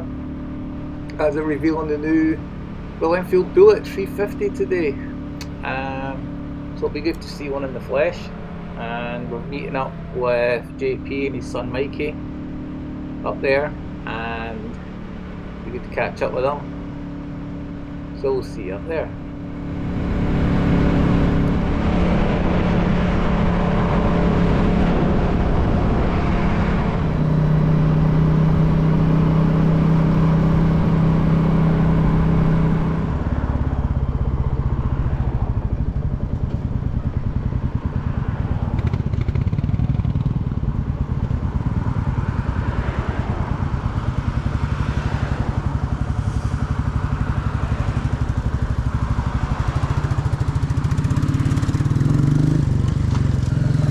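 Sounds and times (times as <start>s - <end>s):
motorcycle engine running: 0.0s - 53.9s
road noise: 0.0s - 53.9s.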